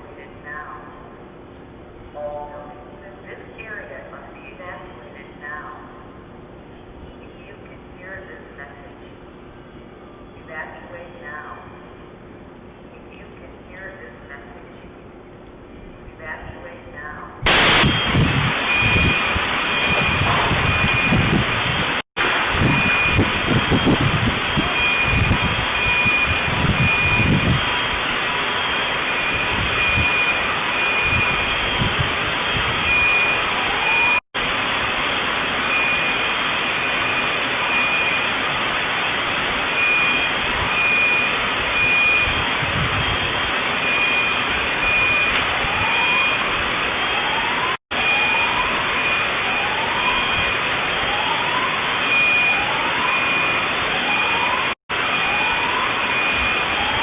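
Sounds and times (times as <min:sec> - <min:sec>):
electronic alarm beeping: 0:17.5 - 0:21.4, 0:22.6 - 0:27.5, 0:29.1 - 0:31.8, 0:32.8 - 0:34.2, 0:35.7 - 0:38.3, 0:39.7 - 0:42.4, 0:43.8 - 0:46.4, 0:48.0 - 0:50.6, 0:52.0 - 0:57.0
loud rushing noise: 0:17.5 - 0:24.7.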